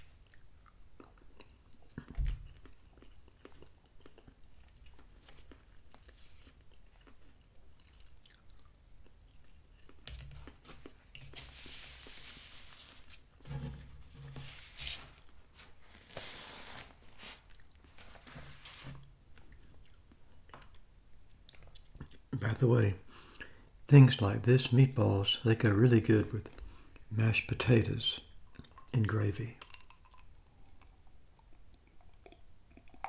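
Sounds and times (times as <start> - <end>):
paper napkin rustling: 10.6 - 19.1
wet mouth clicks: 29.6 - 33.0.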